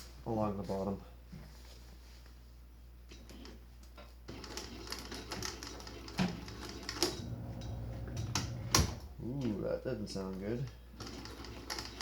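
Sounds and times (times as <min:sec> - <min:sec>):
motor hum: 0:07.0 - 0:09.2.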